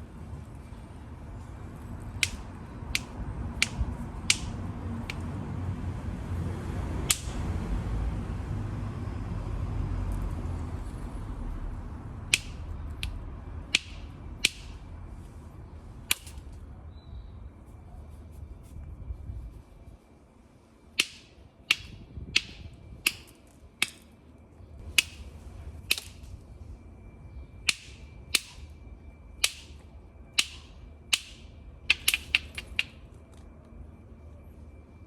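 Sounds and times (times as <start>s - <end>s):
hammer striking flint: 2.2s - 5.2s, 12.3s - 14.8s, 21.0s - 24.1s, 24.9s - 26.2s, 30.4s - 33.0s.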